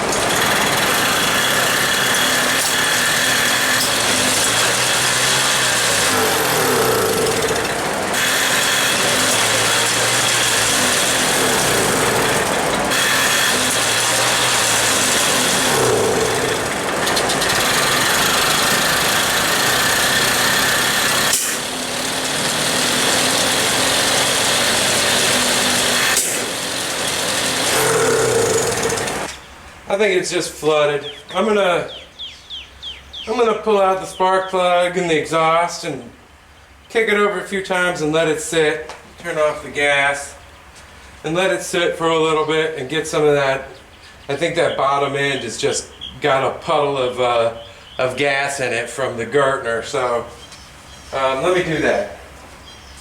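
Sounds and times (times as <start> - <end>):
moped engine cranking: 0.0 - 29.5
fan running: 0.0 - 53.0.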